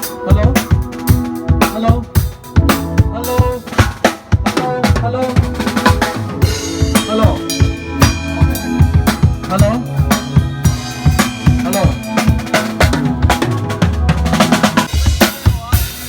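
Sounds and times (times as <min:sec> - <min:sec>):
drum kit groove: 0:00.0 - 0:16.0
cymbals ringing: 0:06.1 - 0:16.0.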